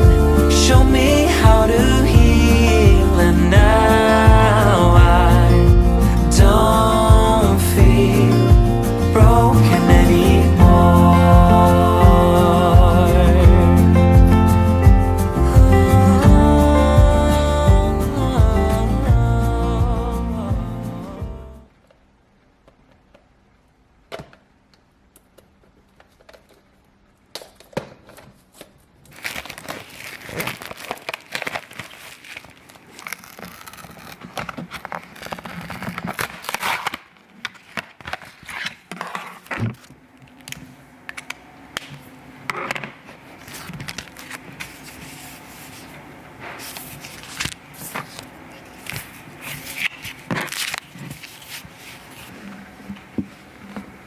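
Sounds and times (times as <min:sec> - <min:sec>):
crinkling and rustling: 0:25.1 - 0:54.0.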